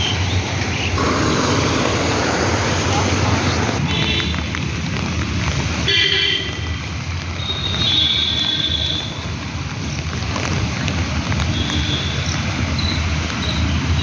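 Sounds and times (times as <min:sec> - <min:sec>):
rain hissing: 0:00.0 - 0:07.8
street traffic: 0:00.0 - 0:14.0.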